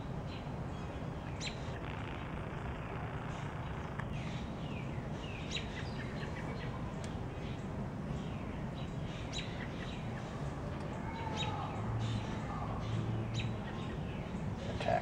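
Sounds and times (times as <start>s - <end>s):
steady low rumble: 0.0s - 8.0s
small birds chirping: 0.2s - 15.0s.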